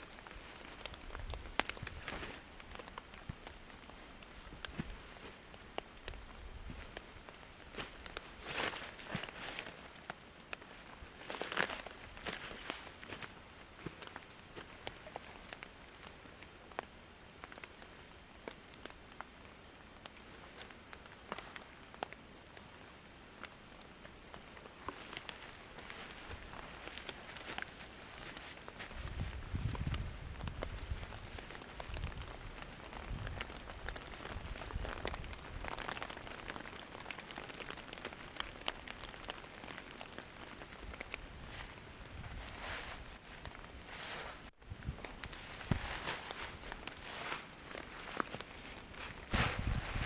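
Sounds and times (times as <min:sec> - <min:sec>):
raindrops tapping: 0:00.0 - 0:09.4, 0:11.3 - 0:42.0
faint steady rain hiss: 0:00.0 - 0:50.0.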